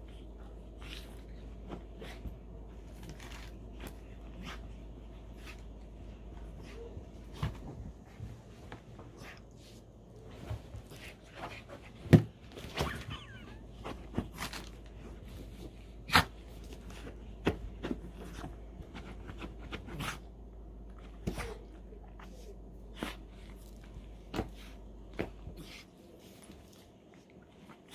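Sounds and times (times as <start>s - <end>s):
dog thumping and scuffing: 0.8s - 20.2s.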